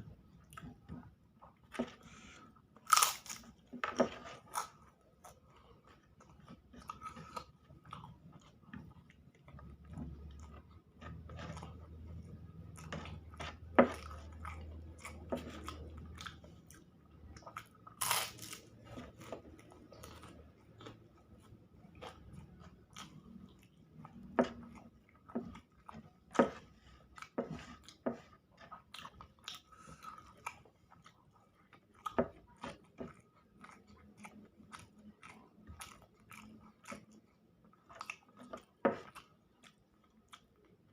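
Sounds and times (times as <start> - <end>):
person chewing and biting food: 1.6 - 40.6
food crunching and snapping: 2.8 - 26.6.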